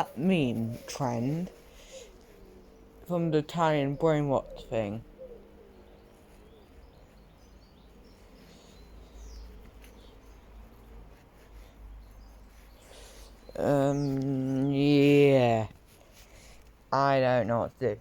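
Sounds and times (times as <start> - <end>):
faint bird chirps: 0.0 - 15.8.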